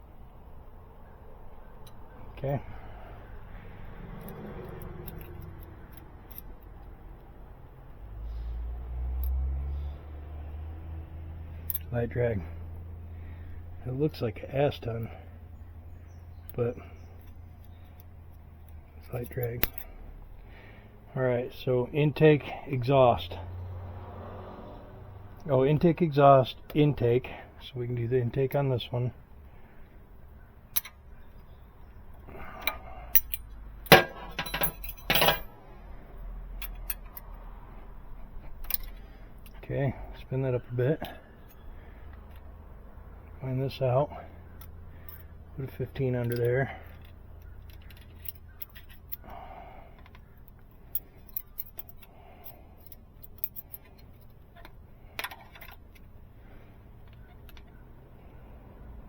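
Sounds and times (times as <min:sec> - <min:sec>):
metal tools clinking on engine parts: 0:04.1 - 0:06.9, 0:11.5 - 0:12.5, 0:16.2 - 0:20.2, 0:30.7 - 0:35.6, 0:36.5 - 0:37.4, 0:38.2 - 0:42.5, 0:44.5 - 0:56.2.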